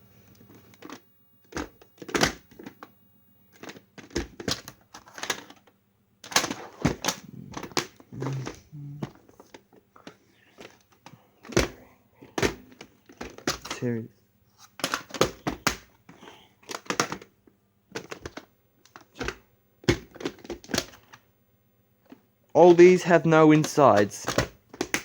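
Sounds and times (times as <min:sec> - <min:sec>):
plastic cassette cases clicking: 0:00.4 - 0:02.9, 0:03.6 - 0:11.8, 0:12.4 - 0:13.8, 0:14.6 - 0:17.3, 0:17.9 - 0:21.2, 0:23.6 - 0:25.0.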